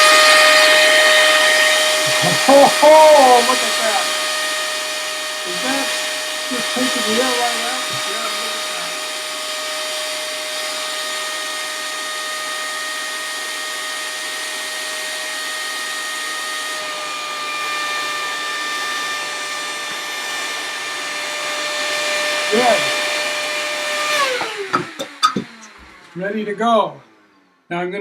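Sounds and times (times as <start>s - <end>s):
hand vacuum cleaner whining: 0.0s - 27.6s.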